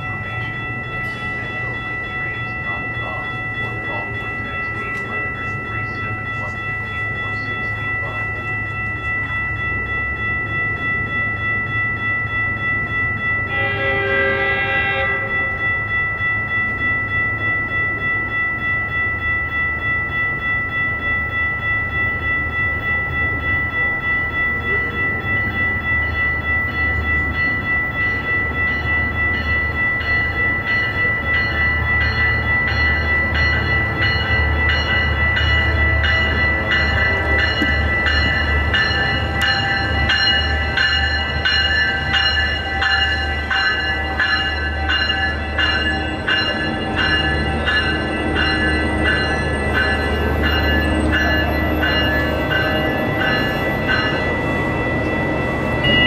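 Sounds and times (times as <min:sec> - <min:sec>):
train rumbling: 0:00.0 - 0:56.0
train warning bells ringing: 0:00.0 - 0:56.0
short train horn blast: 0:13.5 - 0:15.3.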